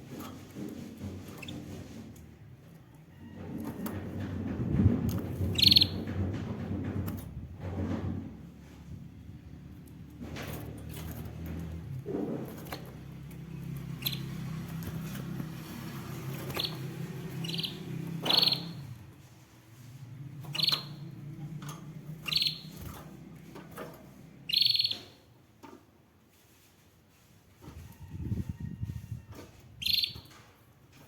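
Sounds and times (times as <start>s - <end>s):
canary chirping and trilling: 5.4s - 6.1s, 12.6s - 19.0s, 20.2s - 25.2s, 29.8s - 30.4s.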